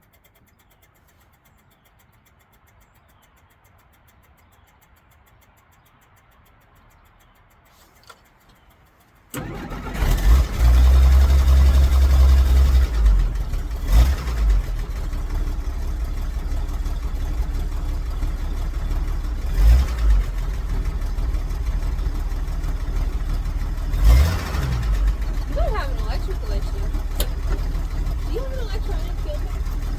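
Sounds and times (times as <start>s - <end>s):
car engine starting and idling: 8.1s - 29.9s
engine throttle blips: 9.3s - 29.9s.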